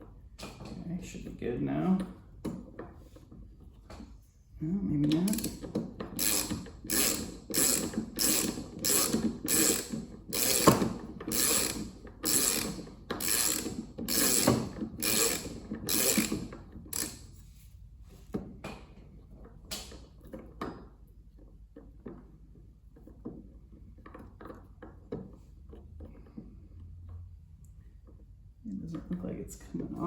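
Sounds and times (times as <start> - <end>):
ratchet wrench clicking: 5.3 - 17.3.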